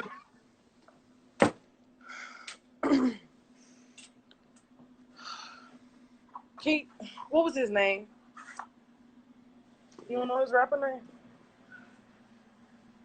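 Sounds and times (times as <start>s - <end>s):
faint steady hum: 0.0s - 13.0s
breathy exhalations: 5.1s - 6.0s.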